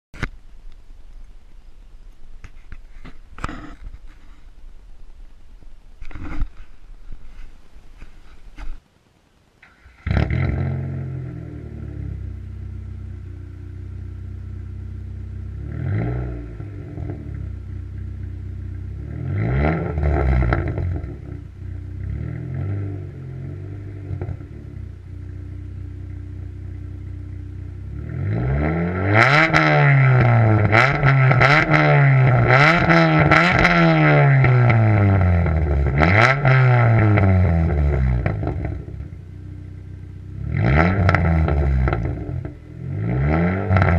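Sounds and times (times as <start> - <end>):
car engine idling and revving: 9.6 - 43.9.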